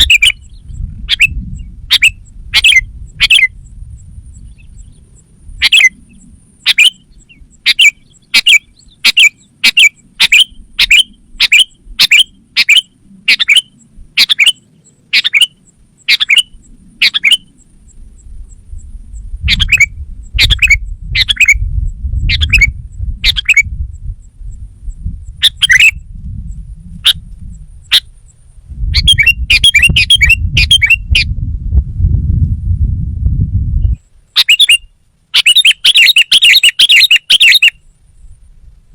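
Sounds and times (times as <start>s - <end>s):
low rumble: 0.0s - 9.0s, 15.7s - 34.1s
bird giving short sharp calls: 34.4s - 37.8s.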